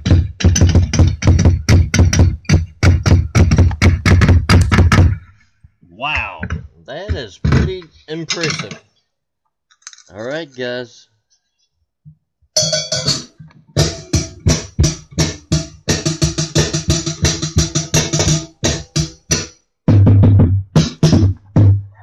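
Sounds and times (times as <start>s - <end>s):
heavy bass drum: 0.0s - 5.2s, 13.8s - 21.8s
snare and cymbal hits: 12.6s - 20.2s, 20.8s - 21.3s.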